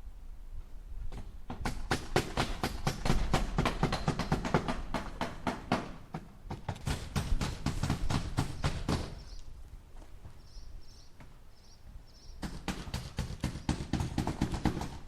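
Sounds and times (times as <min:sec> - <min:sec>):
hammer striking nails into wood: 0:01.2 - 0:09.2, 0:12.4 - 0:15.0.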